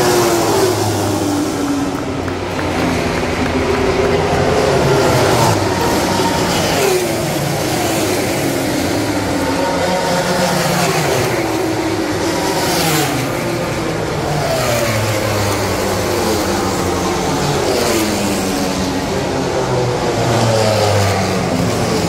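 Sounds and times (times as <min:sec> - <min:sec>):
race bikes passing at high revs: 0:00.0 - 0:22.0.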